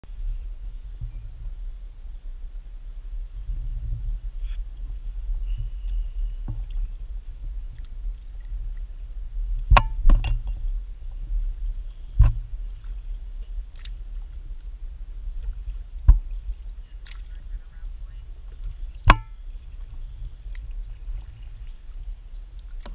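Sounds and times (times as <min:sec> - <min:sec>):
low rumble: 0:00.0 - 0:22.9
paddle knocking on kayak hull: 0:18.6 - 0:19.4.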